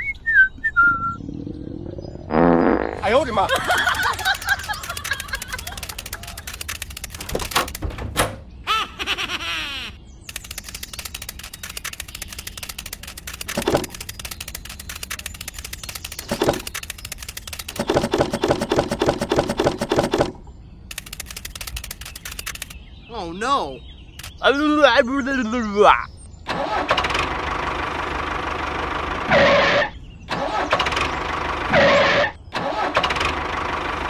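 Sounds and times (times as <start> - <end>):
cartoon buzzing: 2.3 - 7.4
rapid light ticks: 3.6 - 7.8, 10.3 - 20.2, 20.9 - 22.8, 24.2 - 24.4.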